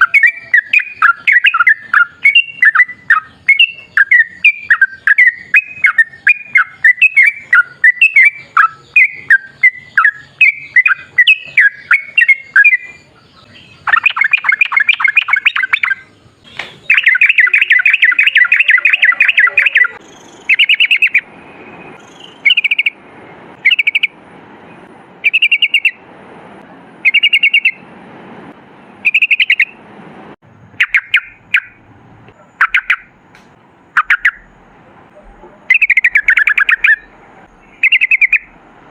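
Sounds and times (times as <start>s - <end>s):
bulbul singing chirps: 0.0s - 23.0s, 23.6s - 24.2s, 25.2s - 26.0s, 27.0s - 27.8s, 29.0s - 29.8s, 30.7s - 34.6s, 35.2s - 38.6s.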